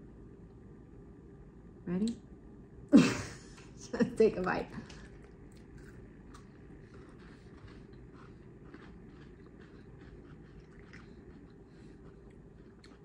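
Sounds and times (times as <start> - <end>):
steady low hum: 0.0 - 13.0
people chewing: 4.8 - 13.0.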